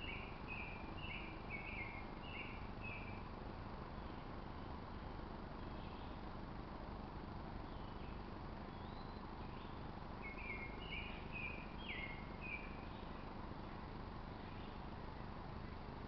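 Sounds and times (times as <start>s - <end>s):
bird chirping: 0.0s - 3.2s, 7.7s - 13.2s
steady outdoor hiss: 0.0s - 16.0s.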